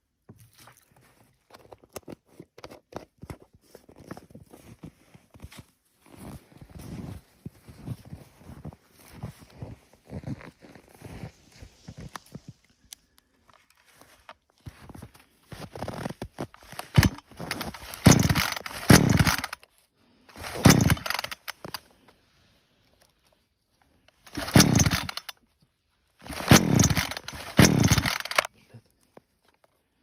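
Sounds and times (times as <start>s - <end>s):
chainsaw revving: 16.8s - 19.6s, 20.3s - 21.5s, 24.3s - 25.3s, 26.2s - 28.5s.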